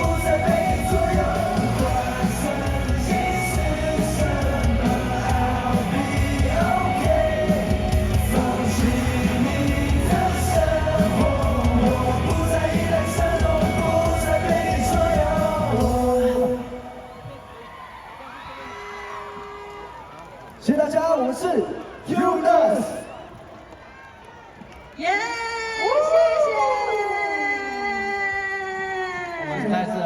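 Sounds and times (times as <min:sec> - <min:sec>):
live rock-pop band with singing: 0:00.0 - 0:17.5.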